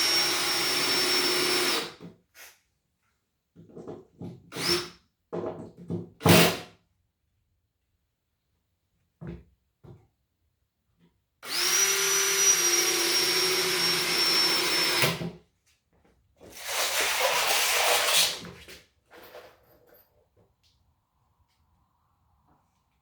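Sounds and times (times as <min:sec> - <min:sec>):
cordless drill whining: 0:00.0 - 0:01.9, 0:04.5 - 0:04.9, 0:11.4 - 0:15.2.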